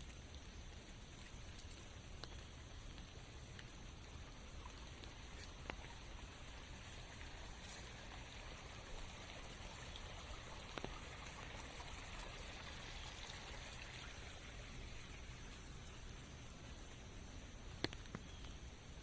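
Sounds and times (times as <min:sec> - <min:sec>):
rain hissing in forest: 0:00.0 - 0:19.0
water drips ticking: 0:00.0 - 0:19.0.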